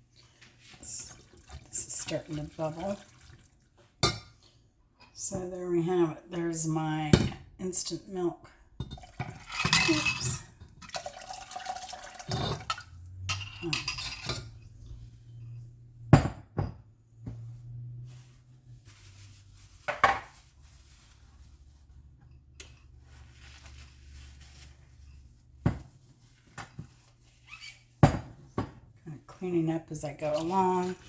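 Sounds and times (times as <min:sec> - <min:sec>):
dishes and utensils clattering: 0:08.8 - 0:11.1, 0:11.8 - 0:14.8.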